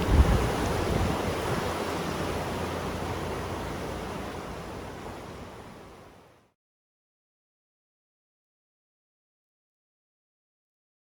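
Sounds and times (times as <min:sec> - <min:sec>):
river water rushing: 0:00.0 - 0:06.4.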